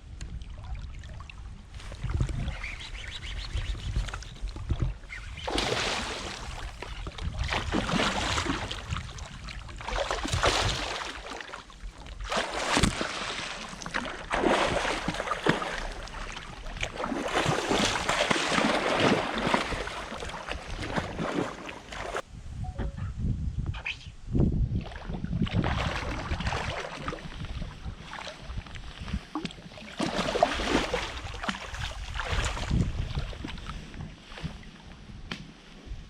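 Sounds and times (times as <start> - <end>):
water sloshing around a boat: 0.0 - 22.2, 24.7 - 36.0.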